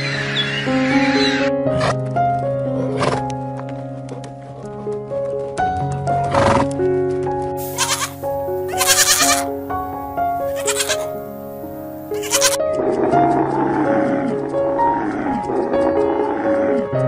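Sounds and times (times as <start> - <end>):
background music: 0.0 - 17.0
goat bleating: 7.6 - 11.3, 12.0 - 12.6.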